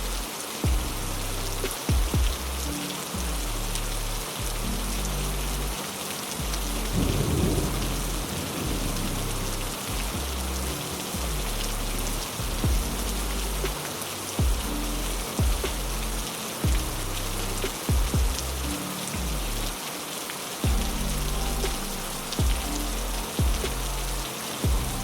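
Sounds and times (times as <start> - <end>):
heavy rain: 0.0 - 25.0
low held music tones: 0.0 - 25.0
low thumps: 0.6 - 3.6, 6.4 - 13.8, 14.4 - 19.7, 20.7 - 25.0
thunder rolling: 6.5 - 13.3.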